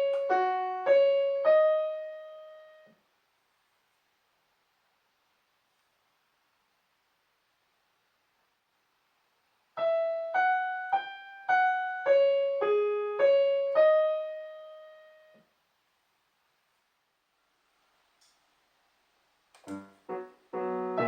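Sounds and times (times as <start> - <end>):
piano melody: 0.0 - 2.9, 9.8 - 15.4, 19.6 - 21.0.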